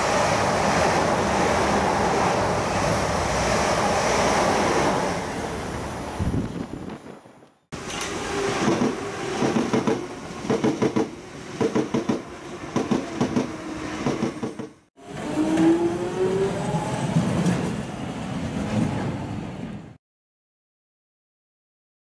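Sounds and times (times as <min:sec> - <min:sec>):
traction motor whine rising: 0:15.0 - 0:17.0.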